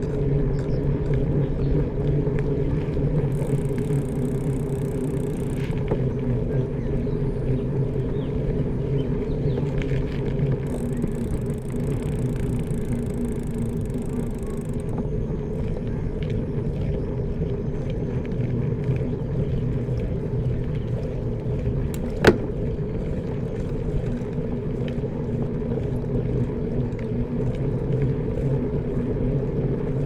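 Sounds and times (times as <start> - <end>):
faint ticks and rattles: 0.6 - 16.8
engine droning: 17.9 - 26.9.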